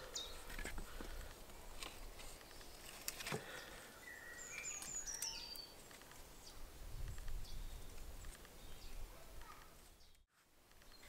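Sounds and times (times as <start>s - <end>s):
songbird singing falling notes: 3.4s - 11.0s.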